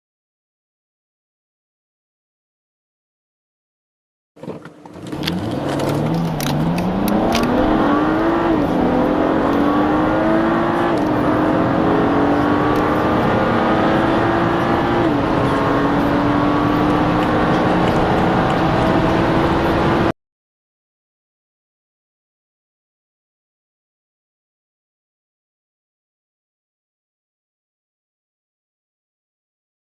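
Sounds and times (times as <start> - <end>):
car engine accelerating hard: 4.4 - 20.1.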